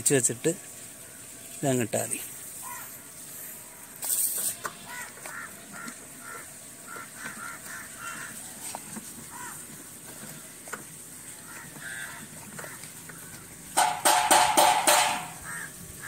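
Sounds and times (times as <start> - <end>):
crows cawing: 2.6 - 3.0, 4.7 - 9.8, 11.3 - 16.0.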